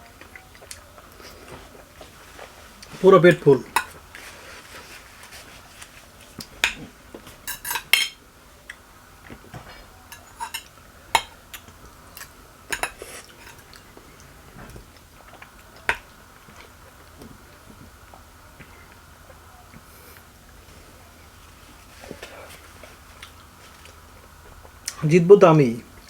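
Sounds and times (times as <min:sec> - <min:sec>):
cutlery clinking on a plate: 0:06.6 - 0:08.2, 0:09.6 - 0:13.8.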